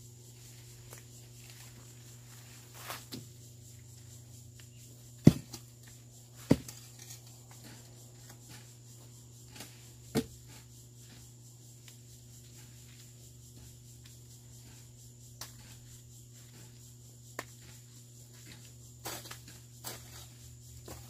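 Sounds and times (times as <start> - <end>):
hoe chopping into ground: 5.2 - 5.7, 6.3 - 6.9, 9.5 - 10.6
hoe scraping soil: 6.2 - 16.9.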